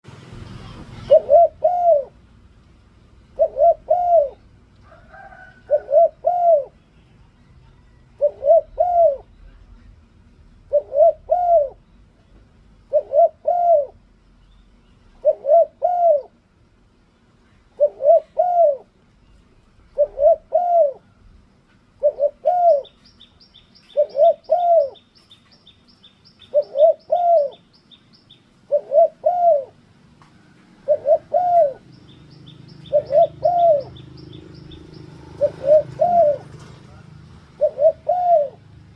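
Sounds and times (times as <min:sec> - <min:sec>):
dove cooing: 0:00.6 - 0:02.3, 0:03.2 - 0:06.8, 0:08.2 - 0:09.3, 0:10.6 - 0:11.8, 0:12.8 - 0:14.0, 0:15.2 - 0:16.4, 0:17.8 - 0:18.9, 0:19.9 - 0:21.3, 0:22.0 - 0:25.5, 0:26.4 - 0:27.8, 0:28.6 - 0:38.9
small bird chirping: 0:22.0 - 0:37.0.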